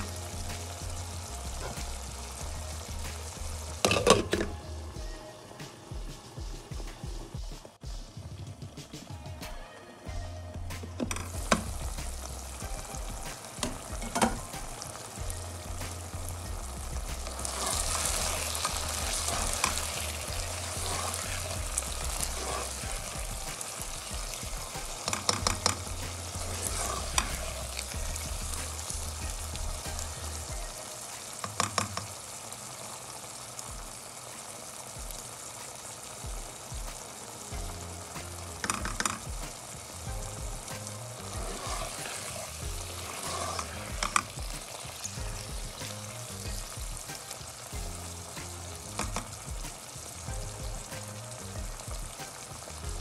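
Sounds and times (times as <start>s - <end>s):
vegetables sizzling in oil: 0.0s - 53.0s
spatula scraping and knocking pan: 11.0s - 30.2s, 38.6s - 39.5s, 41.3s - 48.0s.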